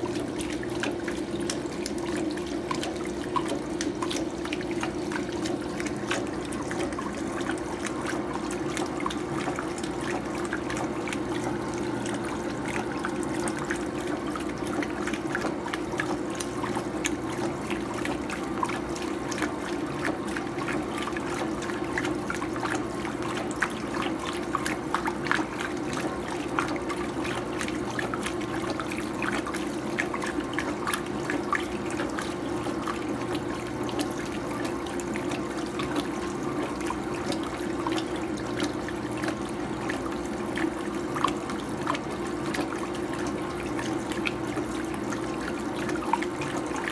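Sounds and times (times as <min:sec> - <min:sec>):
washing machine low hum: 0:00.0 - 0:46.9
water splashing in washing machine: 0:00.0 - 0:46.9.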